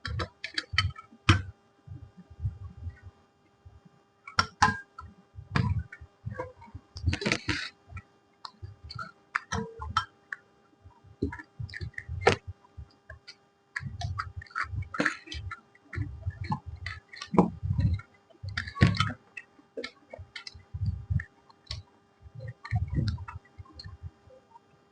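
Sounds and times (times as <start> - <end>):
faint steady hum: 0.0 - 24.9
person chewing food: 11.2 - 19.2, 19.8 - 21.9.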